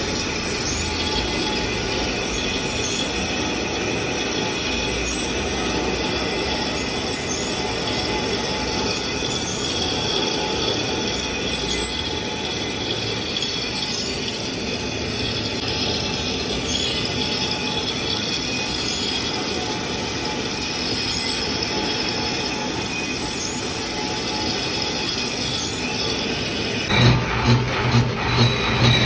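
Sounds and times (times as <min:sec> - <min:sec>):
metalworking machinery screeching: 0:00.0 - 0:29.0.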